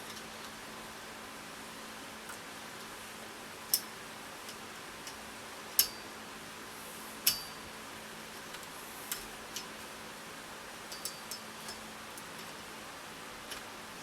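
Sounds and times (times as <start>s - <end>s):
metal tool clicks and taps: 5.8s - 6.0s, 7.3s - 7.5s, 10.9s - 12.3s.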